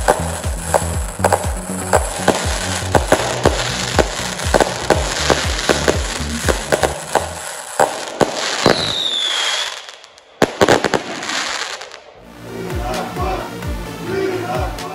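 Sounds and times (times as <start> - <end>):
steady crackling: 0.0 - 9.0
fireworks cake firing: 0.0 - 12.1
falling whistle: 8.6 - 10.1.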